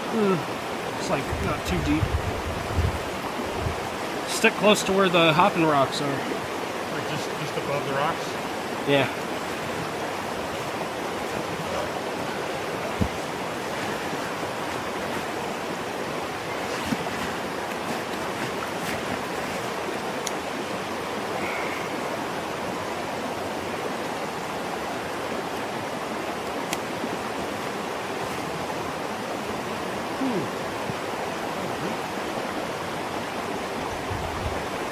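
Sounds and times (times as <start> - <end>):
creek water rushing over rocks: 0.0 - 34.9.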